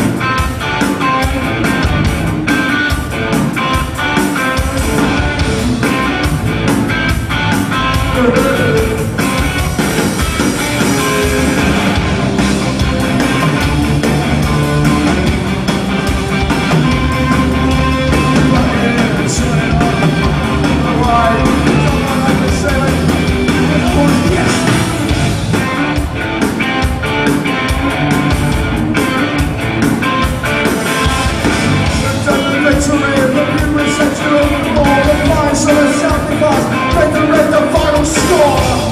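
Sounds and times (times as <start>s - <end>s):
punk band playing live: 0.0s - 38.9s
person singing: 8.0s - 9.1s, 18.1s - 25.0s.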